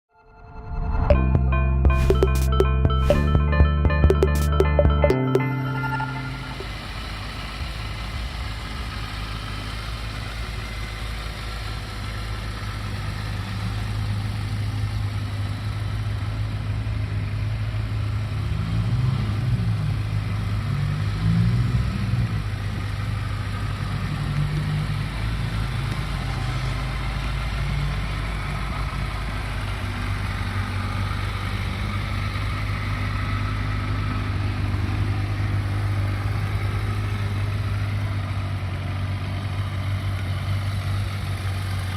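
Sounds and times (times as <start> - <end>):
throttle blips: 1.0 - 6.8.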